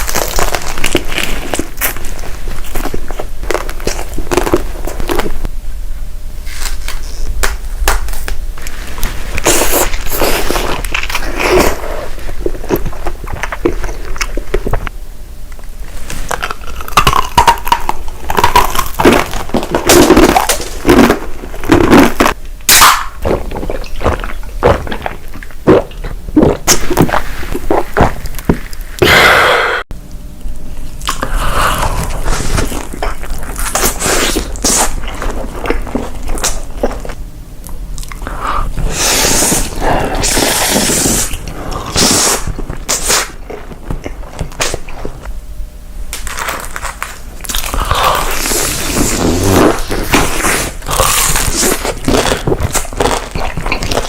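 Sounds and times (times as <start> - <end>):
crunchy chewing: 0.0 - 5.5, 6.4 - 14.9, 15.9 - 29.0, 30.9 - 45.4, 46.1 - 54.0.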